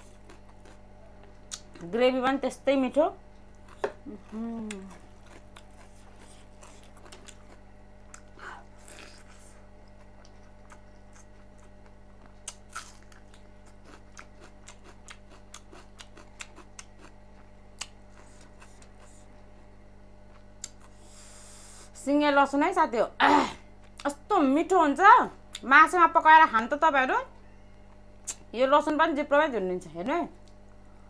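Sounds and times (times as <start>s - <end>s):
person chewing: 0.0s - 1.8s, 3.5s - 19.7s, 20.3s - 21.7s
low electrical hum: 0.0s - 31.0s
wet mouth clicks: 20.6s - 20.9s, 28.2s - 28.4s.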